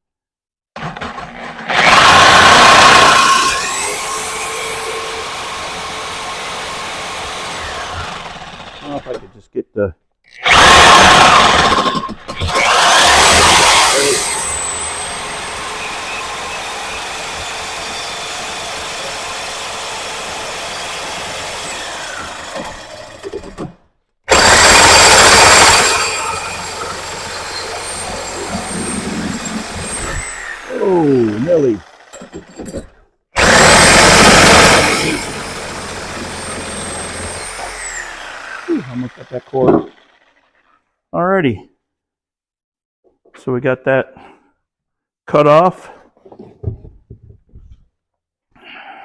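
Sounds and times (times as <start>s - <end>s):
power tool cutting metal pipe: 1.2s - 9.2s, 10.4s - 23.7s, 24.3s - 40.6s.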